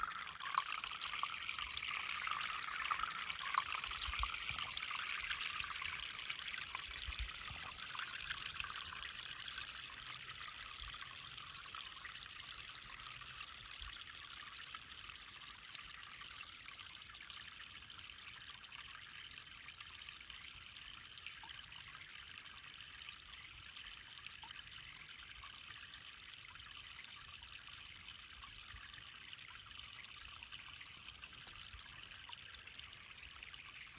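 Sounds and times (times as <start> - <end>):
brook babbling: 0.0 - 15.4.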